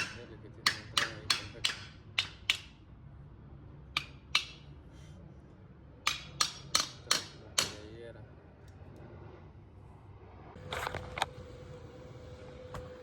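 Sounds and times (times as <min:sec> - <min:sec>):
hammer striking metal: 0:00.0 - 0:02.8, 0:04.0 - 0:04.7, 0:06.0 - 0:07.8.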